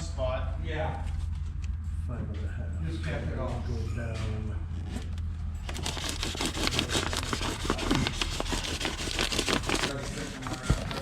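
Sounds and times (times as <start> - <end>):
steady low hum: 0.0 - 11.0
insulation rubbing and crinkling: 4.7 - 11.0.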